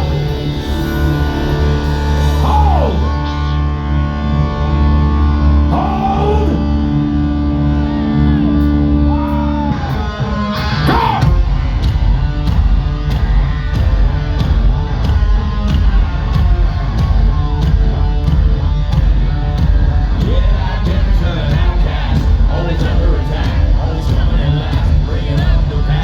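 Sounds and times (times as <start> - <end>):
bending electric guitar notes: 0.0 - 26.0
hard rock band playing live: 0.0 - 26.0
drums playing steady beat: 10.9 - 26.0.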